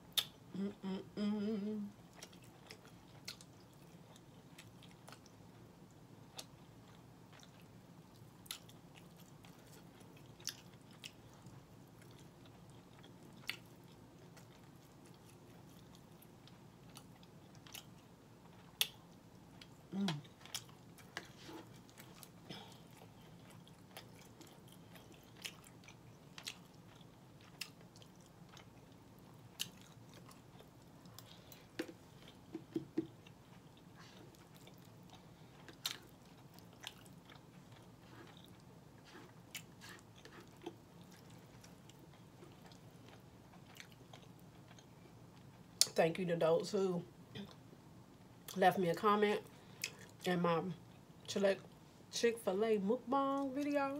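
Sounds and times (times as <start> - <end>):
person chewing: 2.0 - 5.5, 6.3 - 45.6.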